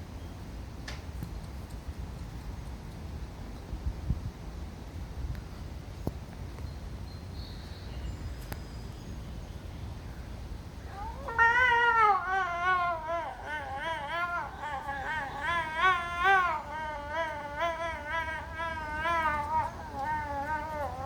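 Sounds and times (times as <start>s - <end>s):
snow leopard calling: 10.8s - 21.0s.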